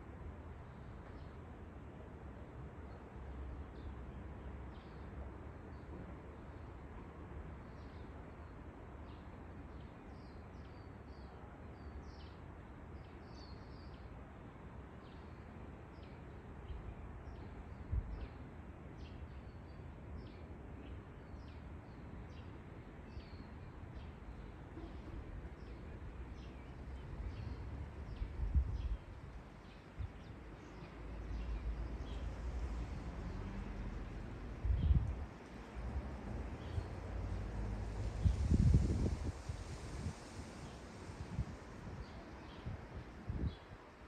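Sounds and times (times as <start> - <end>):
wind rumble on microphone: 17.8 - 18.3, 26.8 - 44.0.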